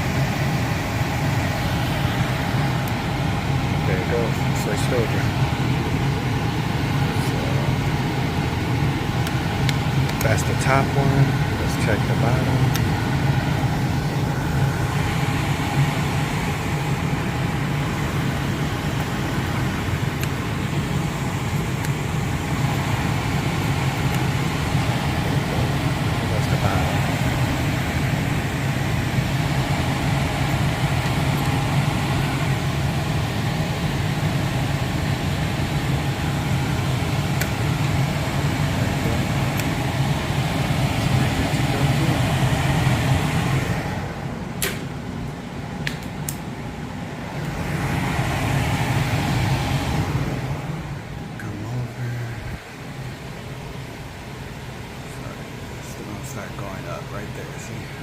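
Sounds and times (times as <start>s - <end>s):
blower fan rushing air: 0.0s - 58.0s
low hum: 0.0s - 58.0s.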